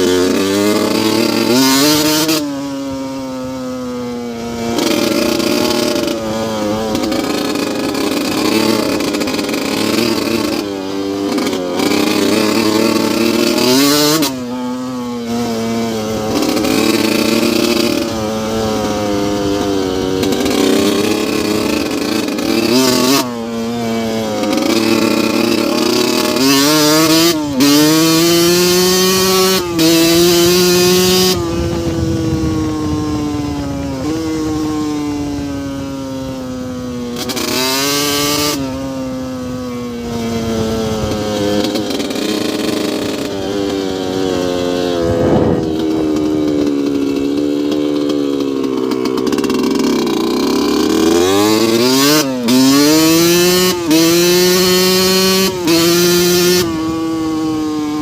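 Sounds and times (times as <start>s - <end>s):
two-stroke engine revving: 0.0s - 58.0s.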